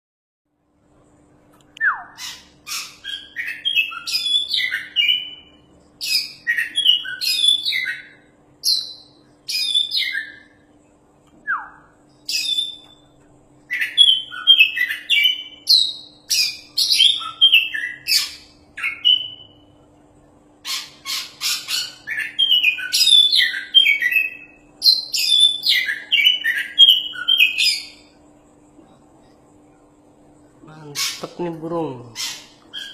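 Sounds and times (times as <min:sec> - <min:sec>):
faint steady hum: 0:00.5 - 0:32.9
bird singing whistles and chirps: 0:01.8 - 0:10.6, 0:11.4 - 0:13.0, 0:13.7 - 0:19.6, 0:21.1 - 0:28.1.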